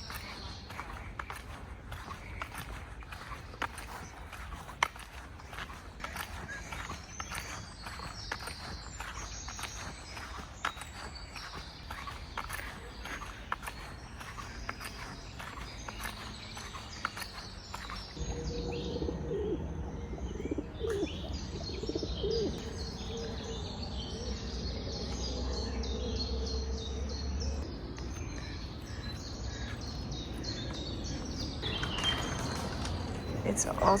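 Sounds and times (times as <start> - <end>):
birds chirping: 0.0 - 34.0
bird cooing: 18.2 - 24.5.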